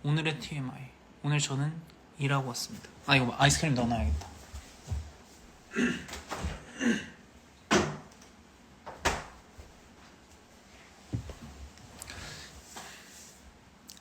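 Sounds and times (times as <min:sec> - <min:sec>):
fridge door opening and shutting: 0:07.7 - 0:08.2, 0:08.8 - 0:09.4.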